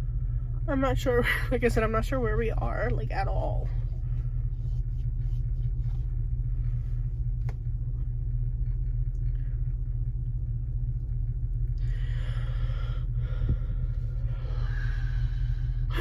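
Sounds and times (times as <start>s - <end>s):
truck rumbling: 0.0s - 16.0s.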